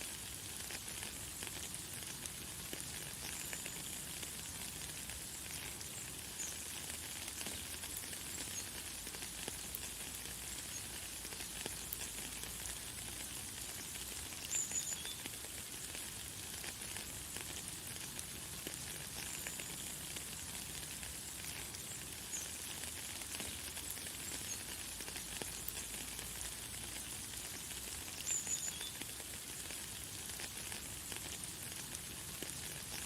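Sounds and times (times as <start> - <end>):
light rain falling: 0.0 - 33.0.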